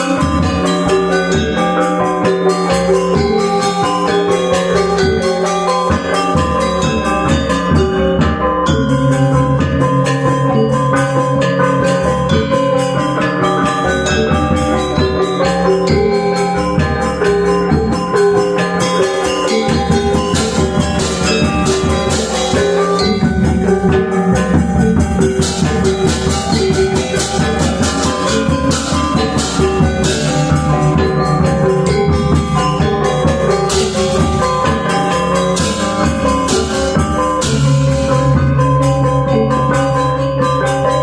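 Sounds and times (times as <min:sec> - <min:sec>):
drum and cymbal strokes: 0:00.0 - 0:41.0
metallophones and gongs ringing: 0:00.0 - 0:41.0.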